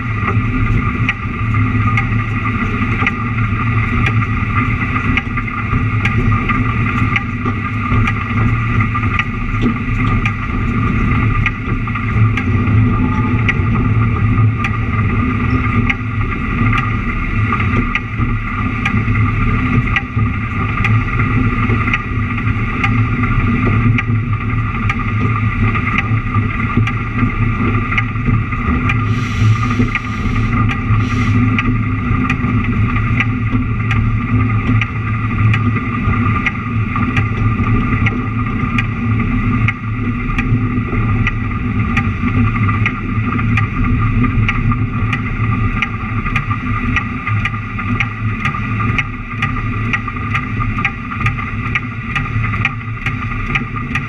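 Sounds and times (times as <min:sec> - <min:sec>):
train engine and running gear drone: 0:00.0 - 0:54.0
faint clicks from rails: 0:00.2 - 0:54.0
short hissing bursts: 0:29.1 - 0:31.4.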